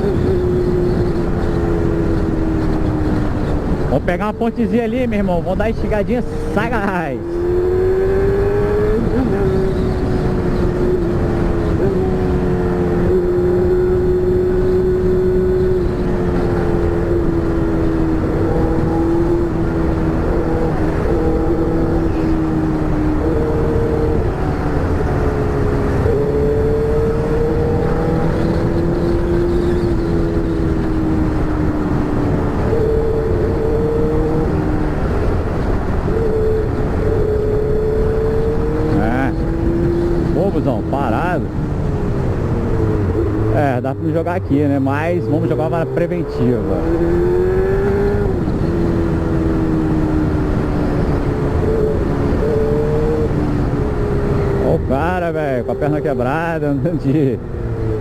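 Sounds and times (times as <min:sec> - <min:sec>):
motorcycle engine running: 0:07.1 - 0:43.8.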